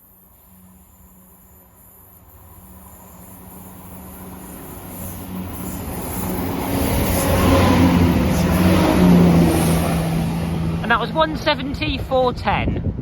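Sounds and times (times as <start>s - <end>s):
diesel train approaching: 0.0s - 12.9s.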